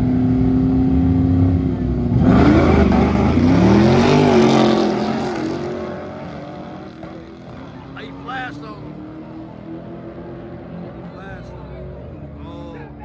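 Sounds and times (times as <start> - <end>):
car engines revving and accelerating: 0.0 - 13.0.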